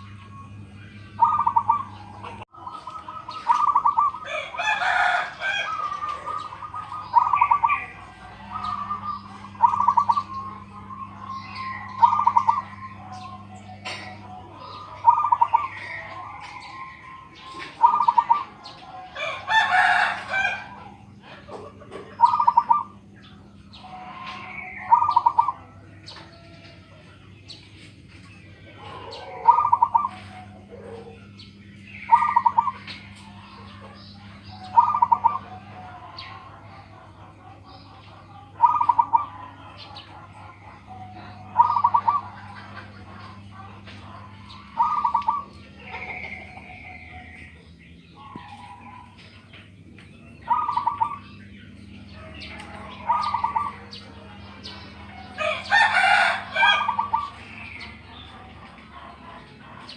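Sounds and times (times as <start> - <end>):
dove cooing: 0.0 - 59.9
small birds chirping: 0.0 - 59.9
steady low hum: 0.0 - 59.9
rooster crowing: 3.2 - 21.2, 28.7 - 31.3, 52.1 - 58.2.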